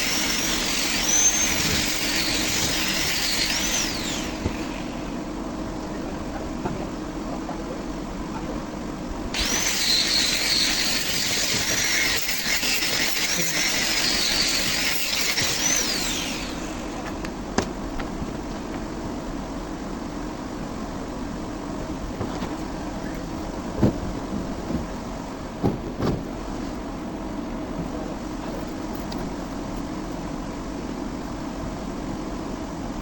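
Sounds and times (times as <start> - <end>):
power tool whining cutting fiberglass: 0.0 - 5.2, 9.3 - 17.4.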